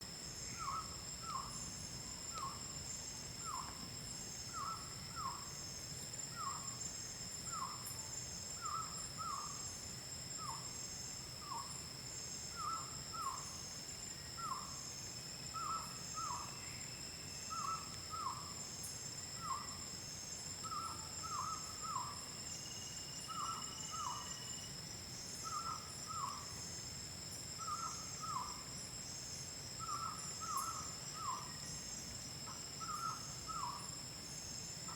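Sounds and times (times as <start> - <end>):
high insect drone: 0.0 - 34.9
pulsing insect trill: 0.2 - 34.9.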